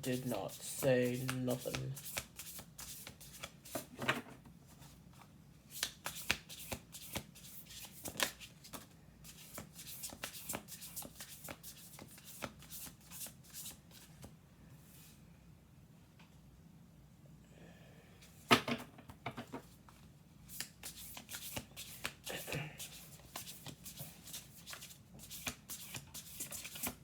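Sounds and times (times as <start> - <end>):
cards being shuffled: 0.1 - 3.9, 4.8 - 14.3, 19.6 - 27.0.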